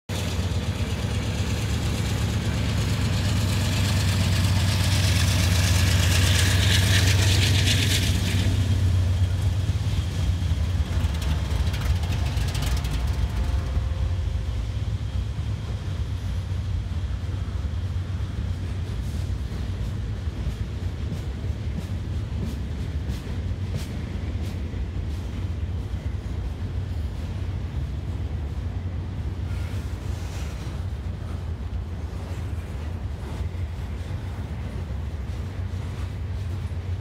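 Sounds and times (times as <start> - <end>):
hiss and clatter: 0.1 - 14.0, 15.2 - 37.0
freight cars rolling: 0.1 - 14.2
diesel locomotive engine drone: 0.1 - 37.0.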